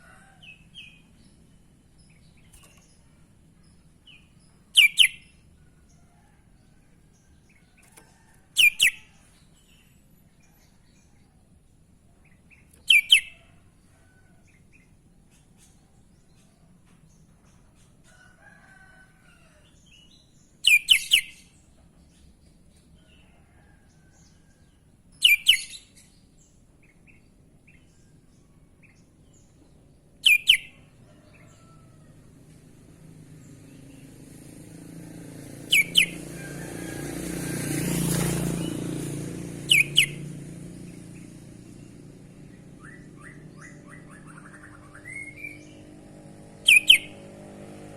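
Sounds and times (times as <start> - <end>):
bird giving sweeping calls: 35.7 - 36.2, 39.7 - 40.2, 46.6 - 47.2.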